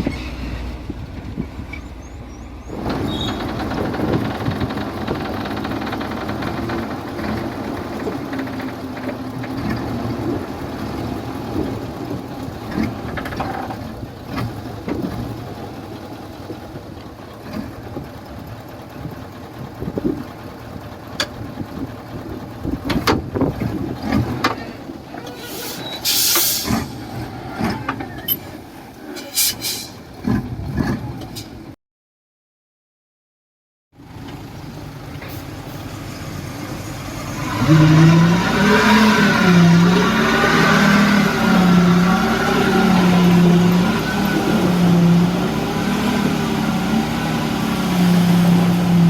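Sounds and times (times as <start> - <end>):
diesel machinery engine drone: 0.0 - 31.6, 34.0 - 49.0
hiss bursts: 25.4 - 27.1, 29.2 - 30.0.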